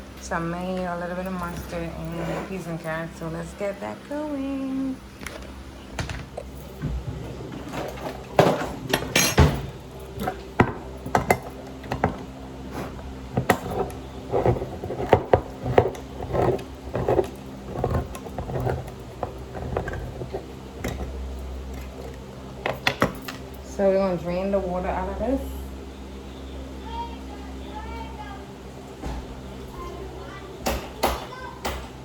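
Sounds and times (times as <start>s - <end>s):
metal cookware clanking: 6.0s - 23.5s.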